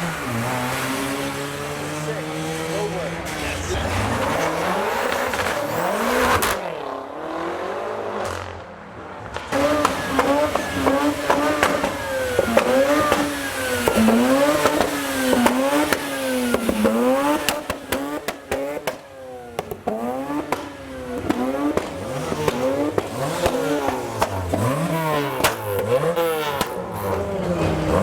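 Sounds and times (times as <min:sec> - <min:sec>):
car engine revving: 0:00.0 - 0:28.0
exhaust pops and crackles: 0:01.8 - 0:06.8, 0:08.1 - 0:28.0.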